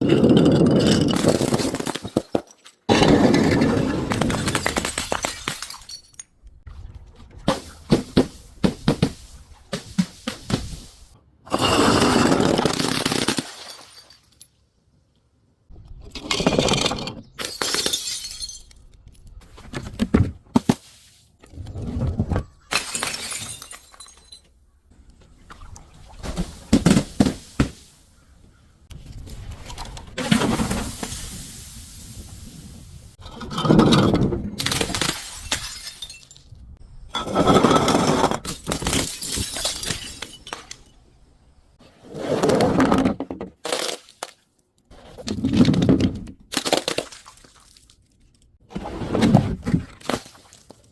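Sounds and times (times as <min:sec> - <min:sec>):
glass bottles breaking: 0:00.2 - 0:06.3, 0:11.5 - 0:14.5, 0:16.5 - 0:18.9, 0:22.7 - 0:24.6, 0:34.6 - 0:36.6, 0:37.2 - 0:41.0.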